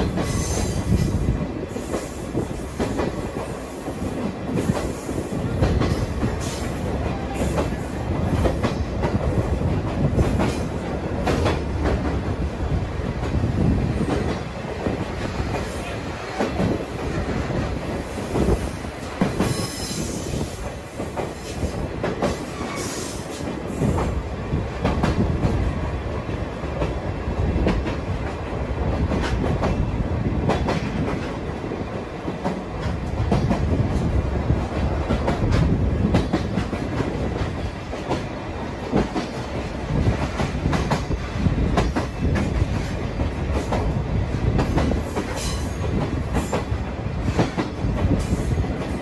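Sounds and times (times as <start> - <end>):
train carriages rumbling: 0.0 - 49.0.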